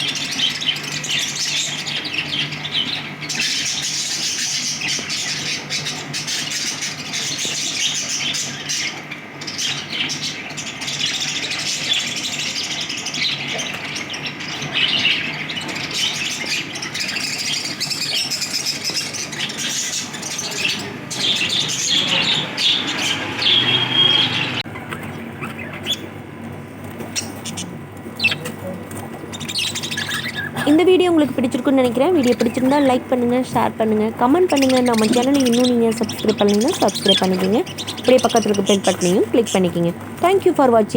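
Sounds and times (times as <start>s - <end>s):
lovebirds chattering and squawking: 0.0s - 40.9s.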